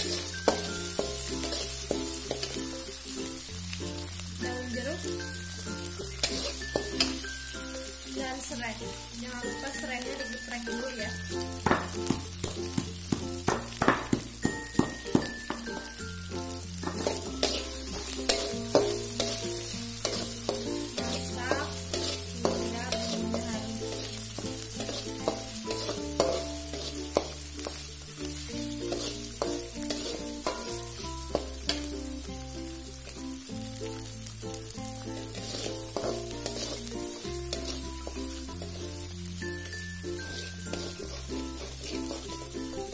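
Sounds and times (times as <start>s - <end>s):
spatula clacking on pan: 0.0s - 2.8s, 6.2s - 7.2s, 11.6s - 15.9s, 16.8s - 27.9s, 28.7s - 32.0s, 35.2s - 38.8s, 40.2s - 42.9s
metal spatula scraping wok: 0.0s - 3.2s, 5.8s - 8.1s, 16.8s - 32.0s, 35.0s - 42.9s
paste sizzling in hot oil: 0.0s - 42.9s
soft background music: 0.0s - 42.9s.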